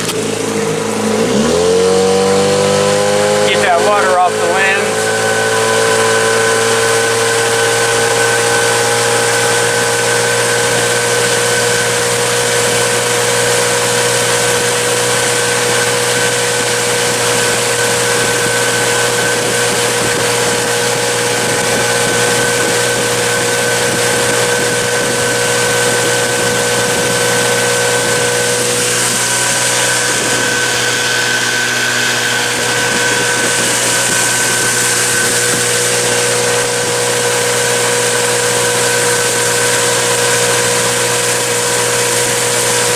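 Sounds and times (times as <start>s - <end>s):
outboard motor running: 0.0s - 42.9s.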